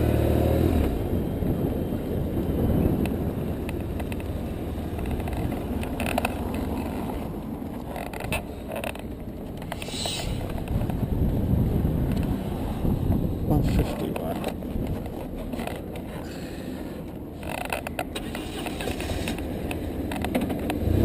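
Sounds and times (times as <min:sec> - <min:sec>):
motorcycle engine rumble: 0:00.0 - 0:21.0
wind rumble: 0:00.0 - 0:21.0
clicks and rattles: 0:03.0 - 0:11.0, 0:13.6 - 0:16.2, 0:17.1 - 0:20.8.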